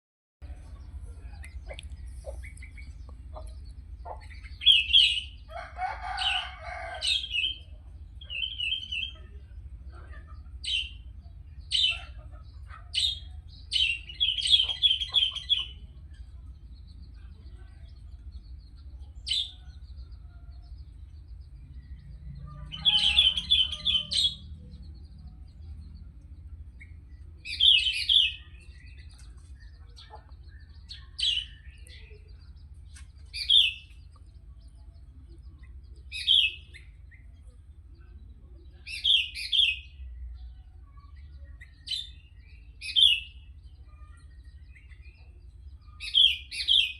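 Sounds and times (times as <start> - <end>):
steady low hum: 0.4 - 22.8.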